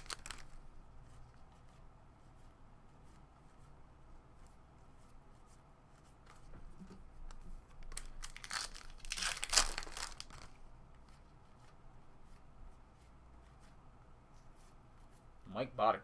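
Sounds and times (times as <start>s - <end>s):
wrapper tearing and crinkling: 0.0s - 0.6s, 7.8s - 10.6s.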